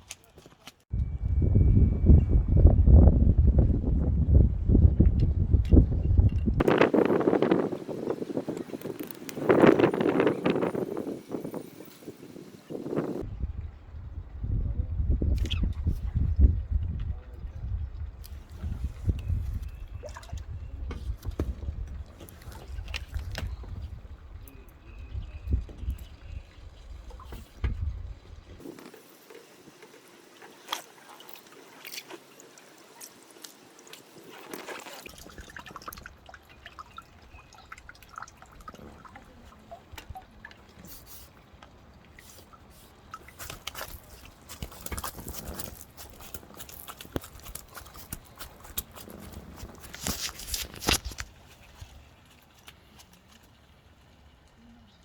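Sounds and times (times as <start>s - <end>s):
water dripping and splashing: 18.0s - 24.8s, 25.5s - 55.0s.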